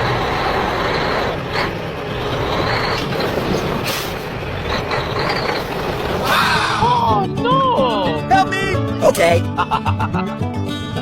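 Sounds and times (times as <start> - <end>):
toy truck motor whirring: 0.0 - 6.3.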